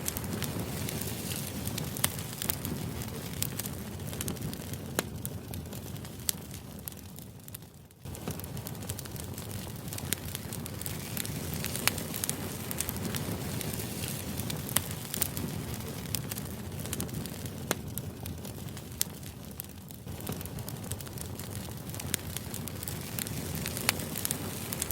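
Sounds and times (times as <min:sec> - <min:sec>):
fire hissing: 0:00.0 - 0:07.3, 0:08.1 - 0:24.9
fire popping and crackling: 0:00.0 - 0:24.9.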